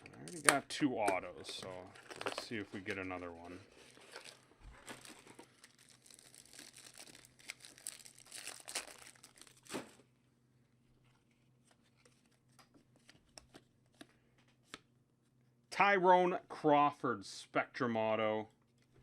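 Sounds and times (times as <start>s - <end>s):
plastic wrapper tearing and crinkling: 1.9s - 3.0s, 3.7s - 10.0s.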